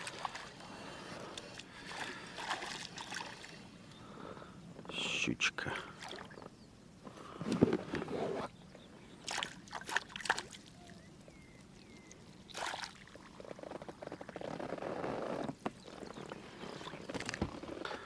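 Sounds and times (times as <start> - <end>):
water sloshing and splashing: 0.0 - 3.7, 5.8 - 6.5, 9.2 - 14.6, 15.6 - 17.7.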